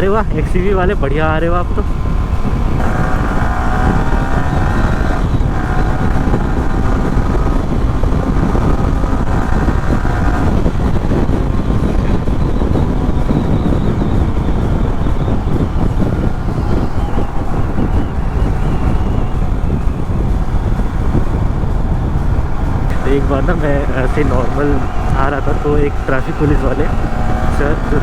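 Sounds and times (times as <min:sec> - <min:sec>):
heavy wind noise: 0:00.0 - 0:28.0
motorcycle engine accelerating: 0:00.0 - 0:28.0.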